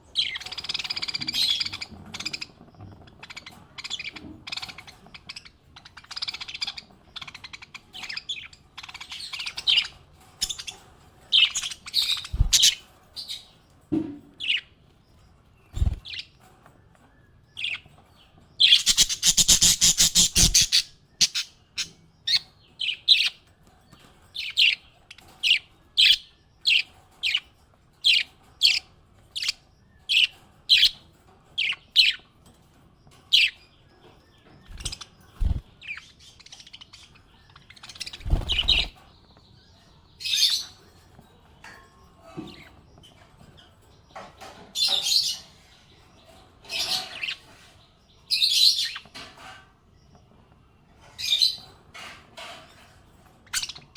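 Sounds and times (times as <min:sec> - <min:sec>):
parrots chirping: 0:00.2 - 0:13.5, 0:18.6 - 0:23.4, 0:34.6 - 0:39.0, 0:53.4 - 0:53.9.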